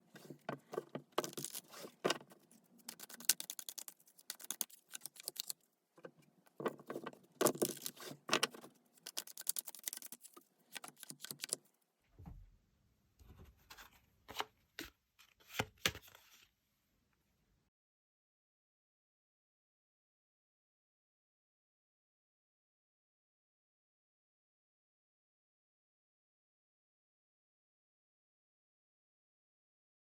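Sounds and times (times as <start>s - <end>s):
cards being shuffled: 0.1s - 5.6s, 6.8s - 11.6s.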